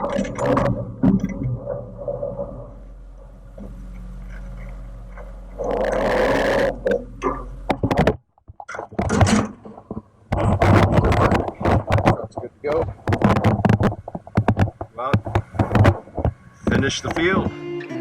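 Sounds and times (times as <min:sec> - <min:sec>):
low machine hum: 0:00.0 - 0:08.1
clattering: 0:00.0 - 0:17.5
knocks and clicks: 0:00.0 - 0:17.6.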